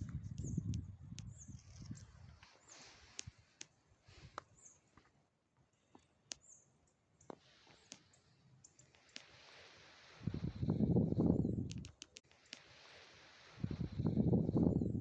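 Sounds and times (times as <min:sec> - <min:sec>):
faint sharp clicks: 0:00.0 - 0:05.1, 0:06.0 - 0:06.6, 0:07.2 - 0:09.6, 0:11.6 - 0:12.8.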